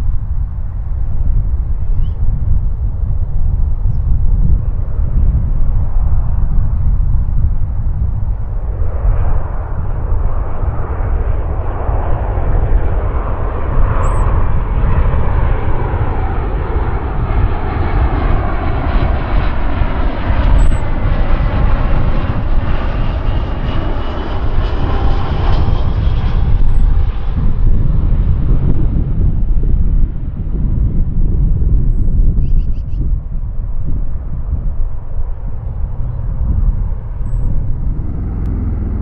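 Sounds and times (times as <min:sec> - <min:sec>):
jet engines roaring: 0:04.7 - 0:30.6, 0:33.1 - 0:39.0
whining engine tones: 0:35.7 - 0:39.0.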